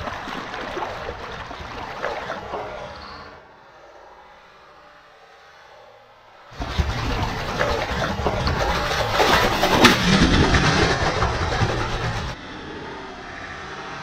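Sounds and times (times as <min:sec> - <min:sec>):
fish thrashing and splashing: 0:00.0 - 0:03.3, 0:06.6 - 0:12.3.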